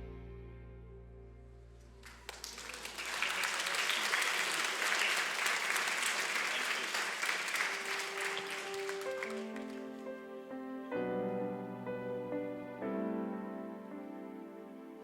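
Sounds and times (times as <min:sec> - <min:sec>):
audience applauding: 0:02.0 - 0:10.2
soft music: 0:07.8 - 0:15.0.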